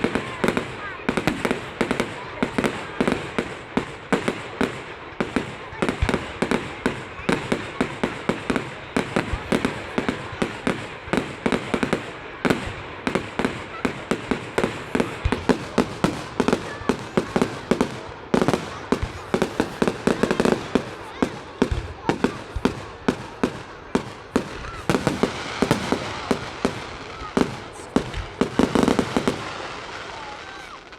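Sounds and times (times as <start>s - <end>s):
fireworks bangs and crackles: 0.0s - 30.9s.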